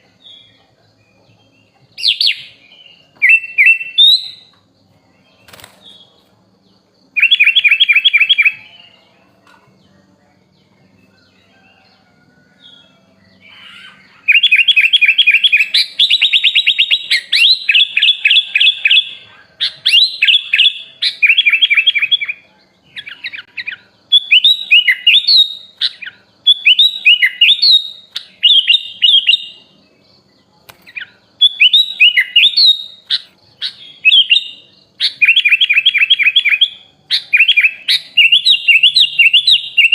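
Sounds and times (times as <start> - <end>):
bird trilling and chirping: 0.0 - 9.8, 10.7 - 39.9
bird whistled phrases: 13.4 - 22.4, 23.0 - 29.7, 30.9 - 39.9.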